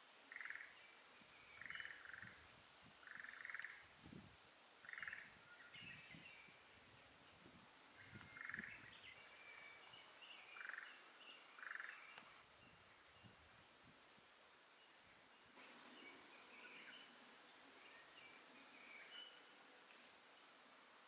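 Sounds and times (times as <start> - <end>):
faint high bird chirps: 0.3 - 2.4, 4.8 - 13.4, 14.8 - 19.6.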